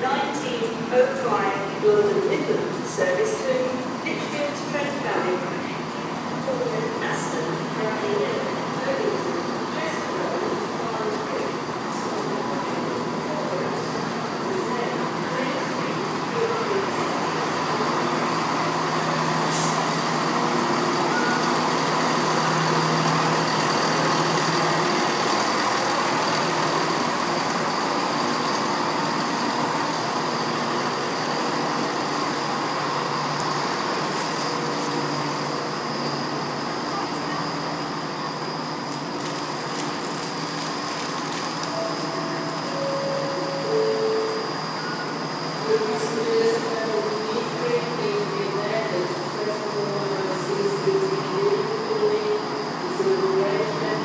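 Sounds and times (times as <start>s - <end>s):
idling trains mechanical drone: 0.0s - 54.0s
high-pitched whine: 14.7s - 54.0s.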